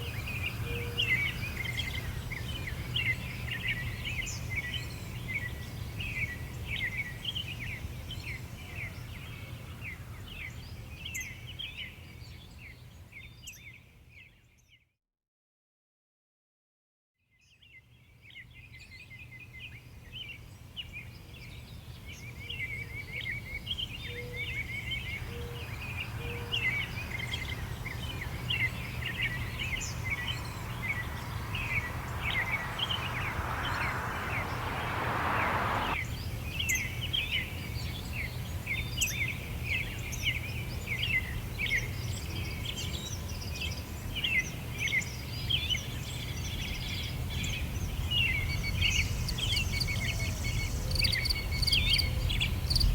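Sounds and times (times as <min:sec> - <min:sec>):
small birds chirping: 0:23.8 - 0:36.0
low rumble: 0:29.3 - 0:36.0
hiss: 0:30.0 - 0:36.0.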